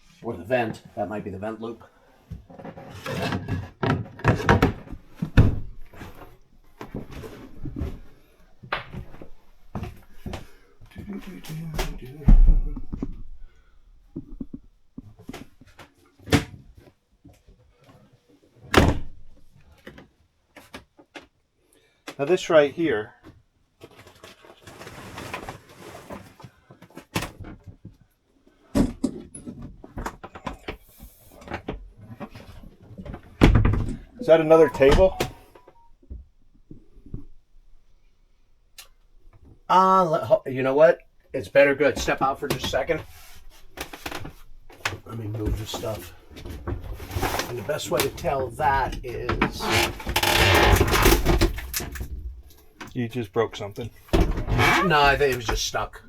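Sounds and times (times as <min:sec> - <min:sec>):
rustling and handling noises: 0:23.7 - 0:28.6, 0:41.9 - 0:55.8.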